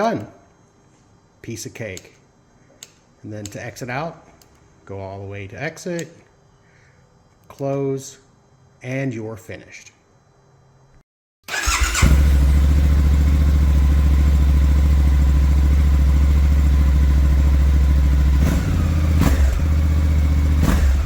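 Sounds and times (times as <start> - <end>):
motorcycle engine running: 11.5 - 21.0.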